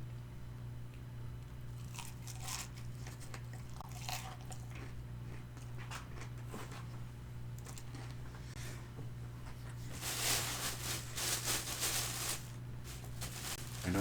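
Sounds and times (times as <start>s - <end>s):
steady low hum: 0.0s - 14.0s
crunching fried chicken: 1.5s - 6.6s, 11.8s - 14.0s.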